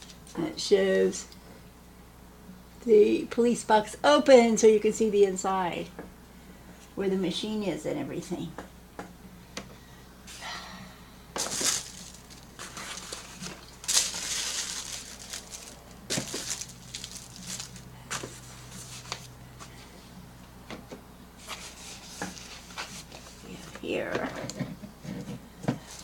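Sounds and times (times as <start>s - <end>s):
packaging rustling and crinkling: 11.4s - 19.3s.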